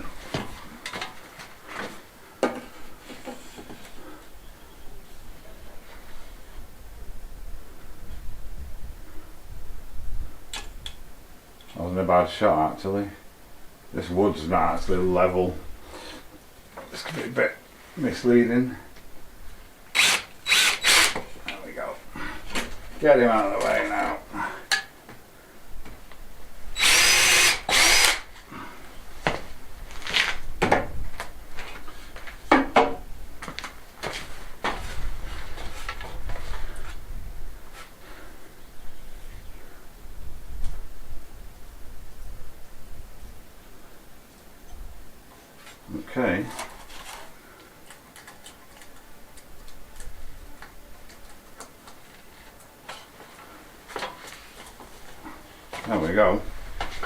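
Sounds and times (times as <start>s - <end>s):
power drill drilling into wood: 19.9s - 21.2s, 26.8s - 28.3s.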